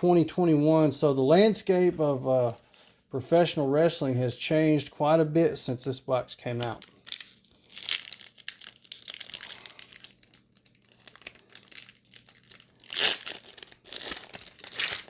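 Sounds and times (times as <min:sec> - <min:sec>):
foil wrapper crinkling and tearing: 0:06.5 - 0:15.0.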